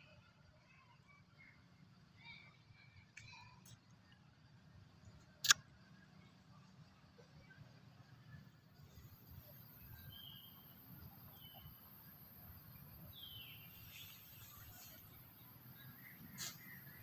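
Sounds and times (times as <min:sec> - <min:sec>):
distant bird chirps: 0:05.0 - 0:17.0.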